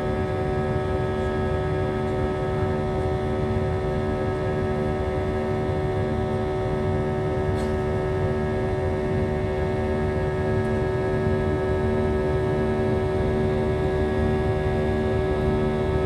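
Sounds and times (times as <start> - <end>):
jet engine drone in cabin: 0.0 - 16.0.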